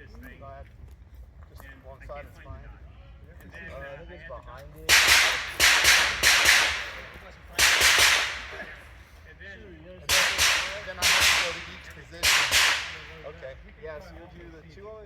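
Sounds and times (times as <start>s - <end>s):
echoing gunshots: 4.9s - 9.2s, 10.1s - 14.0s.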